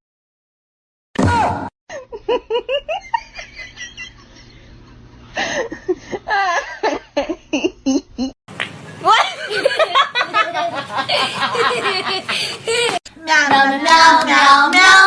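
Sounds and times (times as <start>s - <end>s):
person laughing: 1.9s - 4.7s, 5.3s - 8.4s, 9.0s - 13.0s.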